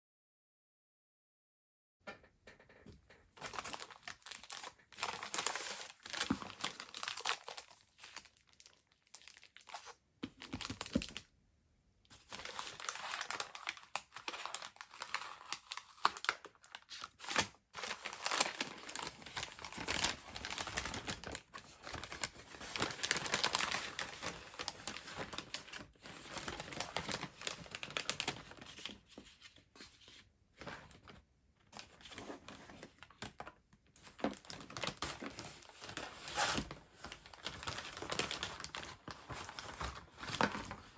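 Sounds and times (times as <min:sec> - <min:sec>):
packaging crinkling and rustling: 0:03.3 - 0:11.3, 0:12.1 - 0:40.9.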